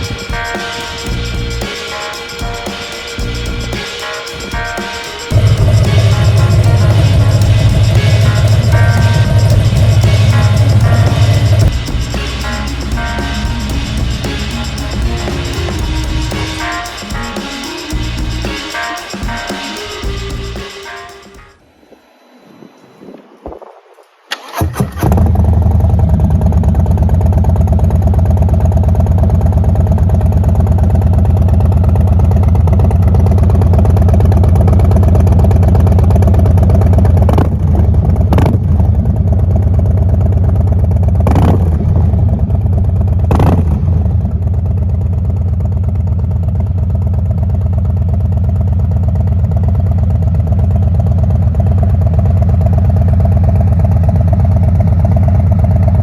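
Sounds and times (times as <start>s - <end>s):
motorcycle engine idling loudly: 0.0s - 1.7s, 5.3s - 16.7s, 25.0s - 56.0s.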